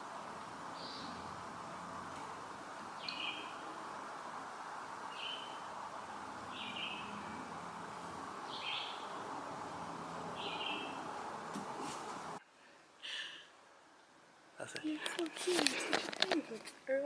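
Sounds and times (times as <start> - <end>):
background hiss: 0.0 - 17.0
bird calling: 3.0 - 3.8, 5.1 - 5.7, 6.4 - 9.5, 10.1 - 11.5.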